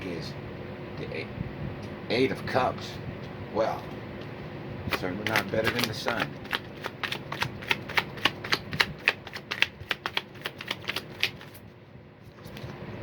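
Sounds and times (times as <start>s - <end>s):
cards being shuffled: 4.9s - 12.8s.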